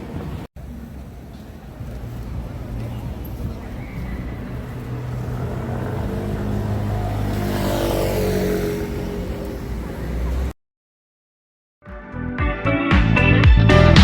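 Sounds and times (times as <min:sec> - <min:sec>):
low traffic rumble: 0:00.0 - 0:10.6
vehicle passing close by: 0:02.0 - 0:10.6.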